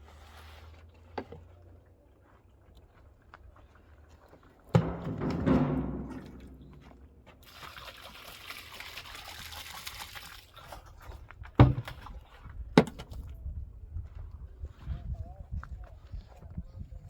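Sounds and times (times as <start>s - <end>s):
sharp knocks: 4.8s - 7.2s
water pouring: 4.8s - 11.0s.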